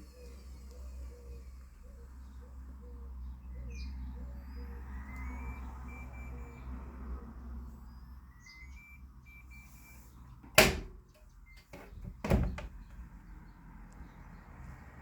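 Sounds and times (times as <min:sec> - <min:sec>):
washing machine hum: 0:10.4 - 0:11.1, 0:11.7 - 0:12.8
loud door clunks: 0:10.4 - 0:13.0.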